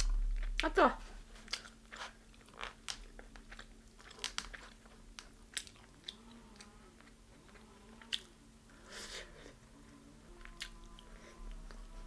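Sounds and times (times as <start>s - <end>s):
faint steady hum: 0.0s - 12.0s
crunchy chewing: 1.3s - 12.0s.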